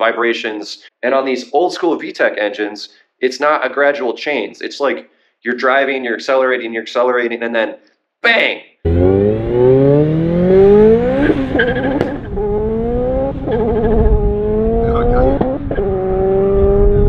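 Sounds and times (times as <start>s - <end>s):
car engine revving hard: 8.9s - 17.0s.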